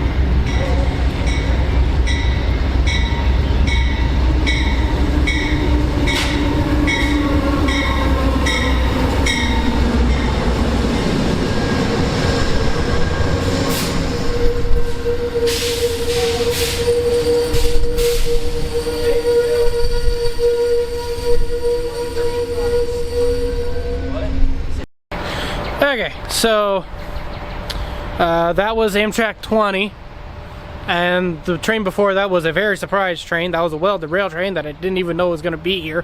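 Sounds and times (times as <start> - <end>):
steady high tone: 0.0 - 24.8
train rumble: 0.0 - 36.0.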